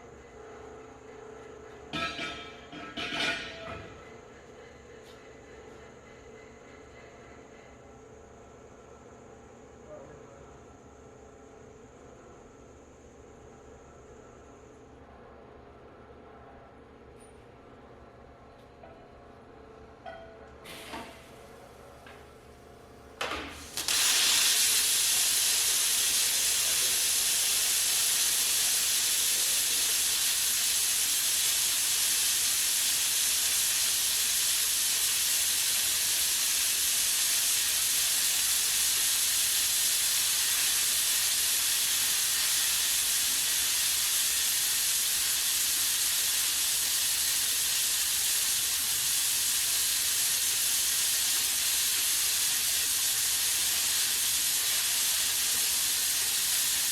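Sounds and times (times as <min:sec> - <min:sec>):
loud steady hiss: 0:00.0 - 0:00.8, 0:20.7 - 0:56.9.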